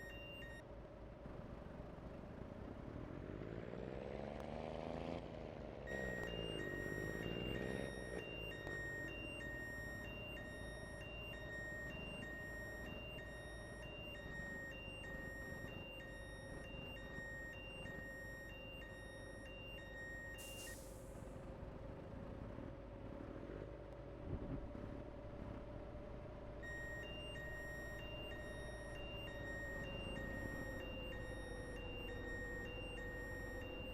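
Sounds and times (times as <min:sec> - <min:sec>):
reversing alarm beeping: 0:00.0 - 0:00.6, 0:05.9 - 0:21.1, 0:26.6 - 0:33.9
air brakes hissing: 0:20.4 - 0:21.2.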